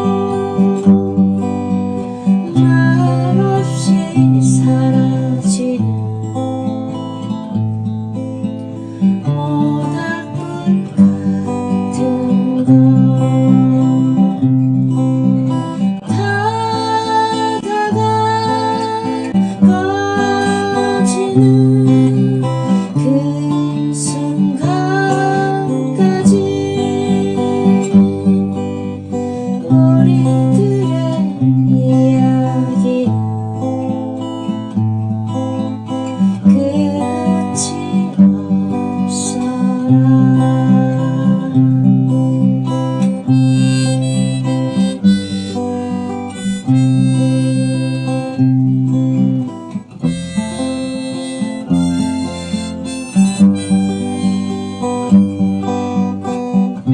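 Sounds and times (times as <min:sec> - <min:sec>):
acoustic guitar strumming rhythm: 0:00.0 - 0:56.9
melody instrument sliding notes: 0:50.4 - 0:55.4.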